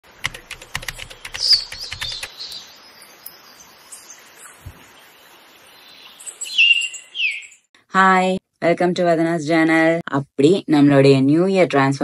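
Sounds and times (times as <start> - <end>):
small birds chirping: 0.4 - 7.7
low thump: 4.6 - 4.9.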